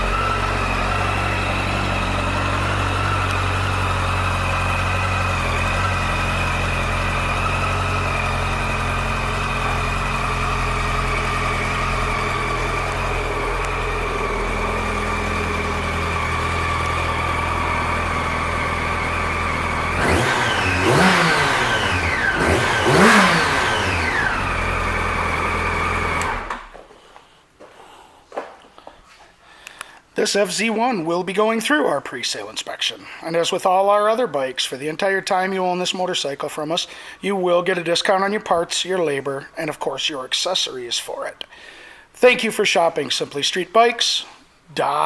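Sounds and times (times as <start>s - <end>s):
motorcycle engine idling and revving: 0.0s - 26.7s.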